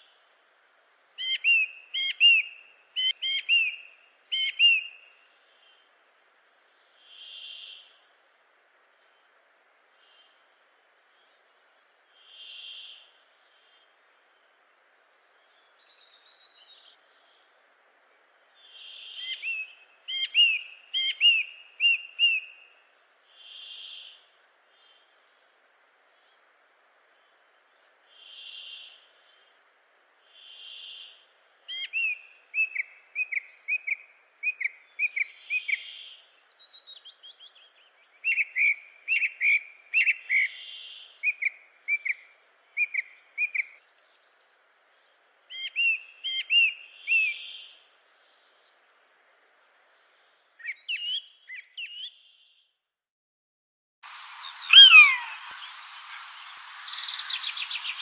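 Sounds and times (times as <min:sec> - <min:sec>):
bird whistled note: 0:54.4 - 0:55.7
birds short sharp chirps: 0:54.4 - 0:58.0.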